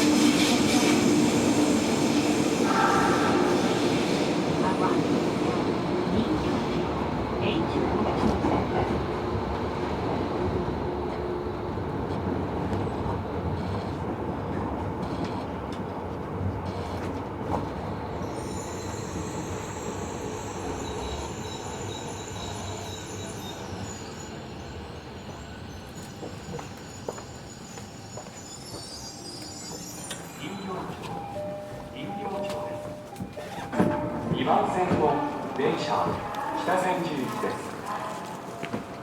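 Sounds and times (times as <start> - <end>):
train wheels rumbling on rail: 0.0 - 30.3
high-pitched brake squeal: 18.2 - 31.0.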